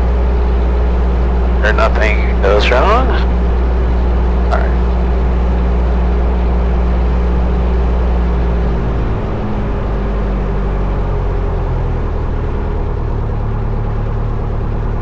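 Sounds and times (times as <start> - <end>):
aircraft engine droning: 1.6 - 4.8.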